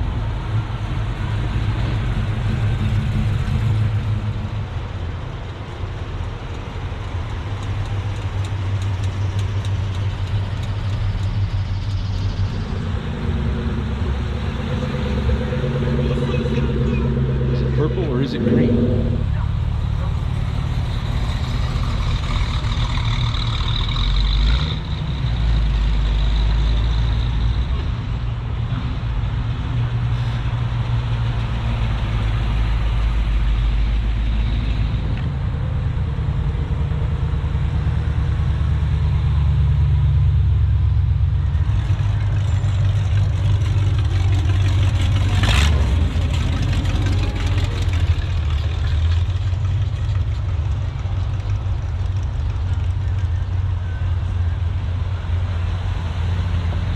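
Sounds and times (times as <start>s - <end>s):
car engines rumbling: 0.0s - 56.9s.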